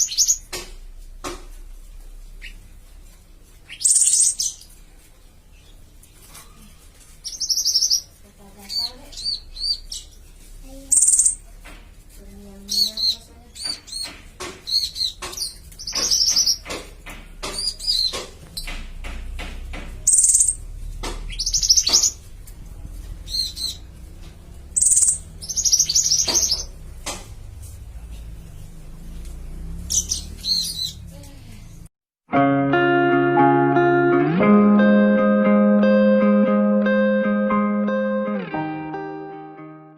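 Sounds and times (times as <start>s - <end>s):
songbirds chirping and trilling: 0.0s - 31.9s
sharp clicking bird notes: 10.9s - 11.5s, 12.7s - 22.6s, 23.2s - 27.9s, 28.5s - 31.1s.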